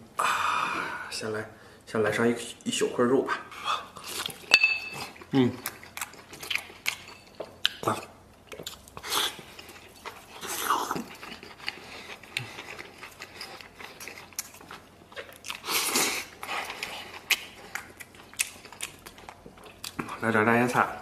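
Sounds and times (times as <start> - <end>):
wet chewing mouth sounds: 3.9 - 20.2.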